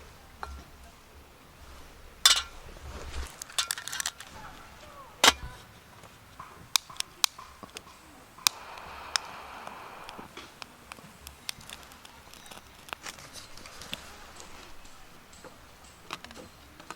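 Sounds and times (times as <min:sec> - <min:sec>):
metal cookware clinking: 0:02.2 - 0:04.4.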